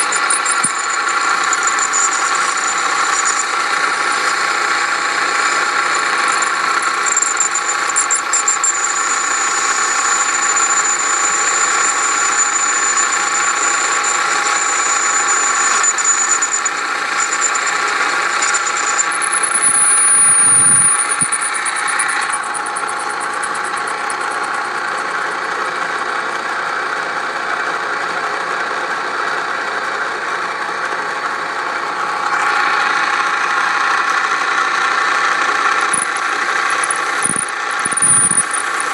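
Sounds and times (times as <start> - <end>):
brief squeal: 0.0 - 4.4, 5.9 - 25.0, 35.9 - 38.9
metal lathe motor droning: 0.0 - 38.9.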